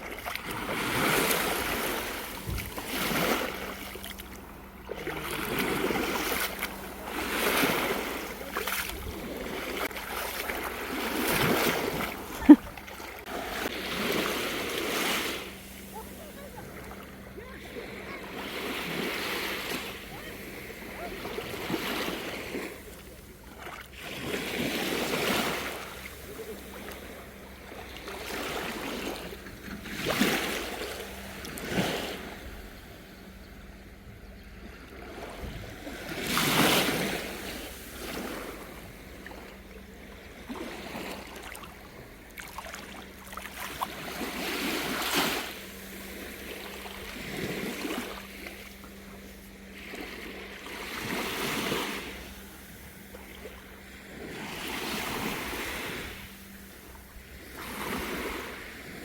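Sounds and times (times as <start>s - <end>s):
calm sea water splashing: 0.0s - 59.0s
steady low hum: 0.0s - 59.0s.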